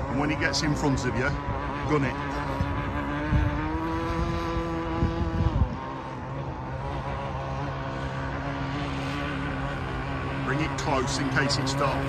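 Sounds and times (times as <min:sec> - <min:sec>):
wind gusts on microphone: 0:00.0 - 0:07.3
boat engine drone: 0:00.0 - 0:12.0.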